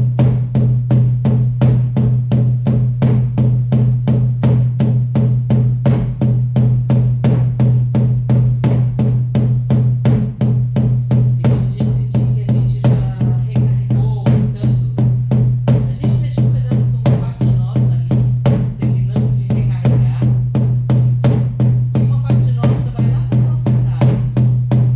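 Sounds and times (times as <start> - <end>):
frame drums beating: 0.0 - 24.9.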